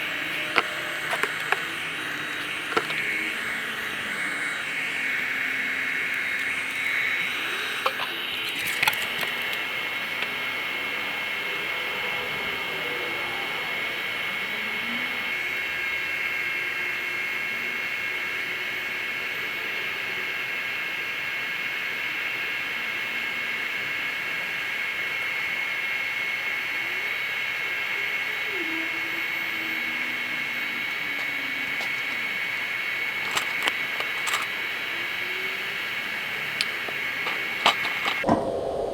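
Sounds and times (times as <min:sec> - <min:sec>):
electric air blower whining: 0:00.0 - 0:38.9
sharp clicks: 0:36.6 - 0:38.3.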